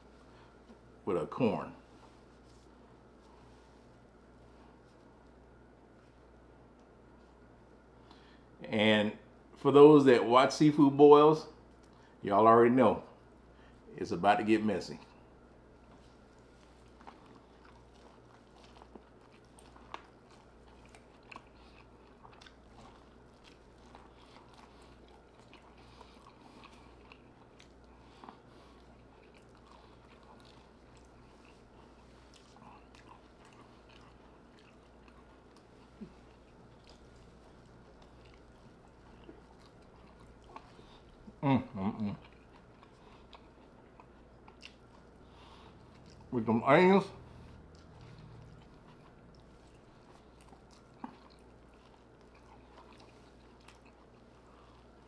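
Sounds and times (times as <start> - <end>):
person chewing corn: 15.0 - 55.0.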